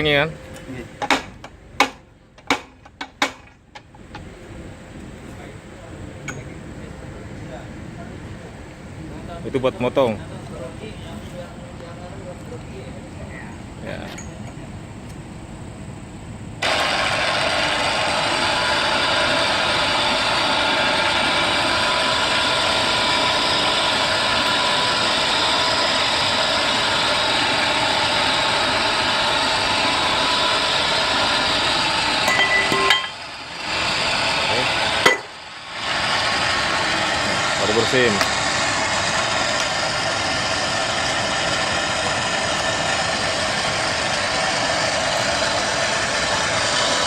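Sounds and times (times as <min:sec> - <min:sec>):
pipe threading machine running: 0:16.6 - 0:47.0.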